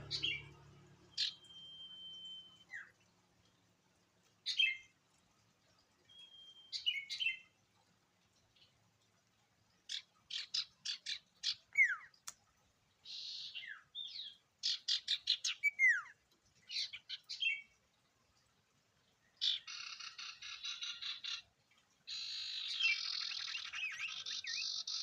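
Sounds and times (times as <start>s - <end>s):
bird chirping and whistling: 1.1s - 2.9s.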